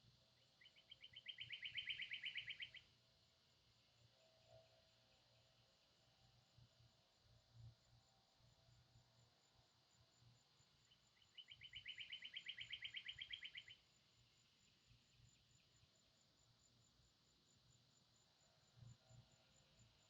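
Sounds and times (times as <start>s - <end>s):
bird trilling: 1.1s - 2.8s.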